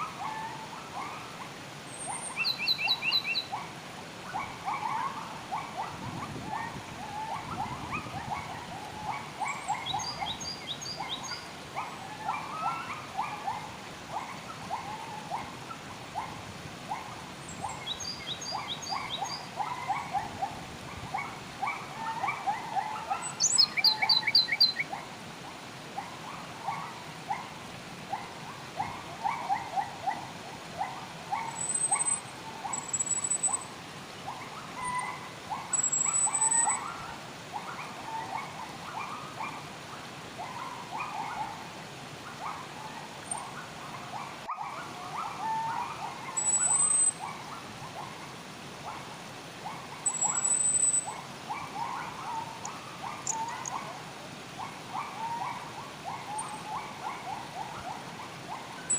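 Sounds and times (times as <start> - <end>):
flowing water hiss: 0.0 - 58.9
birds chirping: 2.0 - 3.6, 9.1 - 11.5, 22.5 - 24.8, 31.3 - 33.6, 50.0 - 51.1, 51.8 - 53.8
thin high bird whistle: 50.1 - 51.1.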